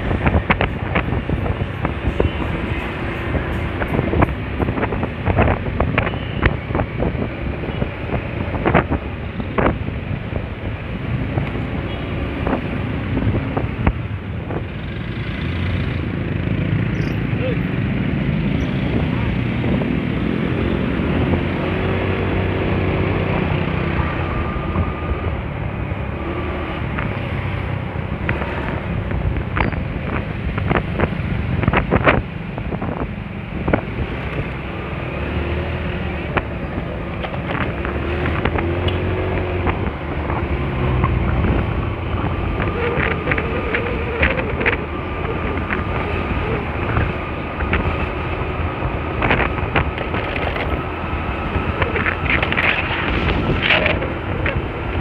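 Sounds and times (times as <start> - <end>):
wind buffeting microphone: 0.0 - 14.9, 17.4 - 55.0
scooter engine drone: 33.1 - 55.0.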